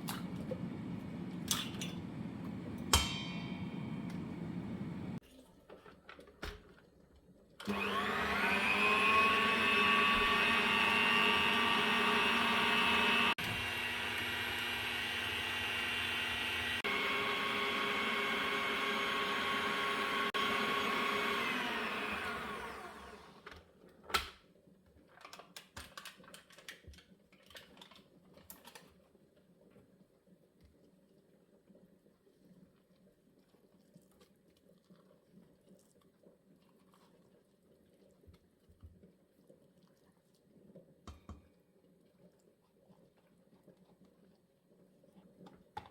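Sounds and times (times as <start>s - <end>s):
kitchen appliance motor whining: 0.0s - 5.2s, 7.6s - 23.5s.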